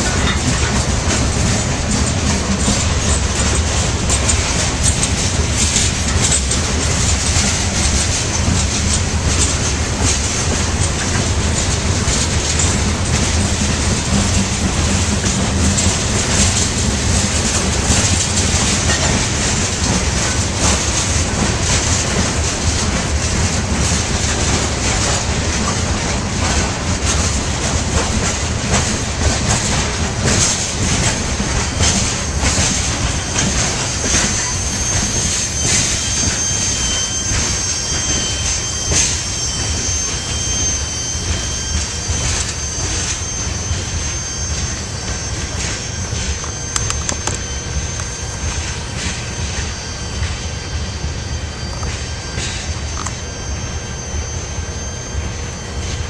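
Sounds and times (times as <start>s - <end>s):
wheels clicking over rail joints: 0.0s - 40.4s
train cars rumbling past: 0.0s - 56.0s.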